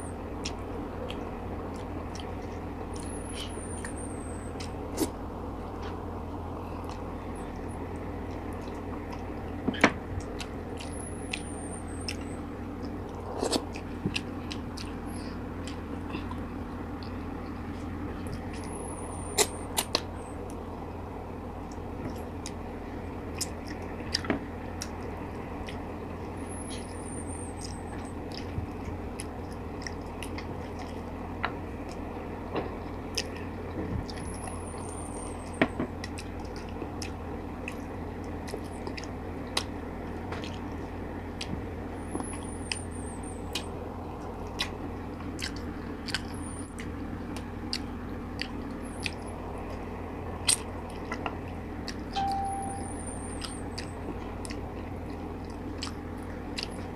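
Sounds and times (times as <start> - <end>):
steady low hum: 0.0 - 56.9
chewing and wet mouth clicks: 0.4 - 3.6, 8.3 - 9.3, 12.1 - 14.9, 17.0 - 17.2, 27.6 - 31.0, 33.1 - 33.4, 36.0 - 37.8, 43.5 - 43.7, 44.5 - 49.8, 50.4 - 52.2, 53.2 - 56.9.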